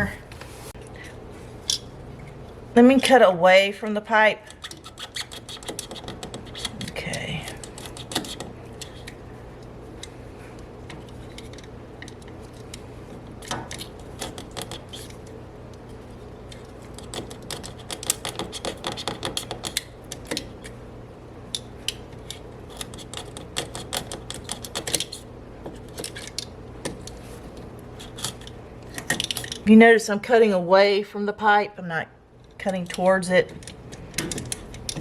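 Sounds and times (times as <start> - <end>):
knife scraping wood: 4.6 - 9.2.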